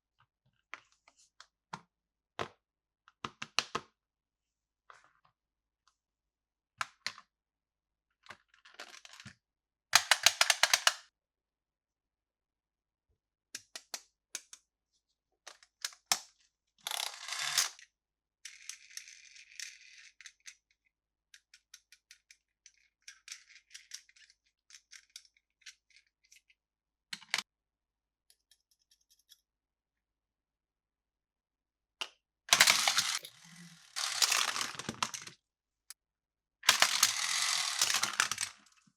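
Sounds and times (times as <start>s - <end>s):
plastic parts clicking: 32.5s - 33.4s.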